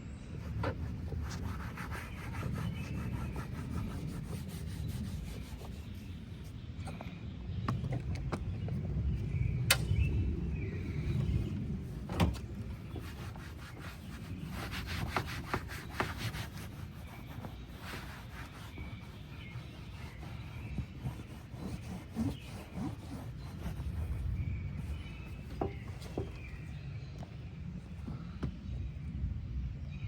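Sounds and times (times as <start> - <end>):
scrubbing car interior surfaces: 0.5 - 6.1, 11.2 - 26.6
steady low rumble: 3.0 - 14.6, 23.5 - 30.0.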